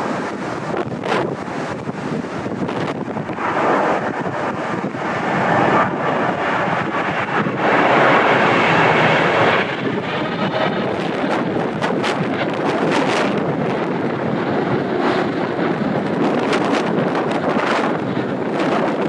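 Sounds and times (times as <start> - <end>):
jet engines rushing: 0.0 - 19.0
wind buffeting microphone: 0.0 - 19.0.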